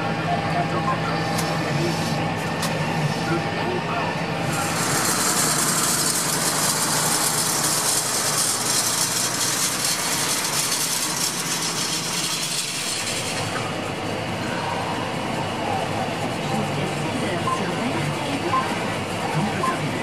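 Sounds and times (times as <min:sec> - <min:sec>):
tractor diesel engine running: 0:04.5 - 0:19.8.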